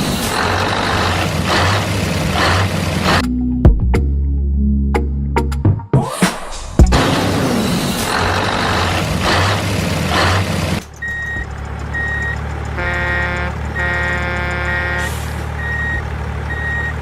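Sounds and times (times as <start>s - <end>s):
truck engine hissing rumble: 0.0s - 3.2s, 6.9s - 17.0s
reversing alarm beeping: 11.0s - 17.0s.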